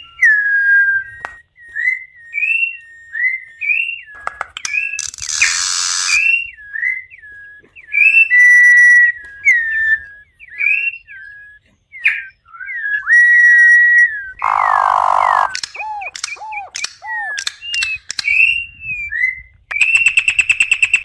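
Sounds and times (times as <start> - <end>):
bird whistling song: 0.0 - 21.0
harsh raspy bird note: 14.4 - 17.5.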